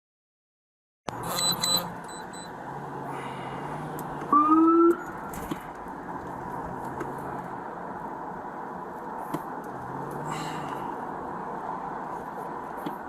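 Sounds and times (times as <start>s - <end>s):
short electronic beeps: 1.1s - 2.5s
vehicle cabin hum: 1.1s - 13.0s.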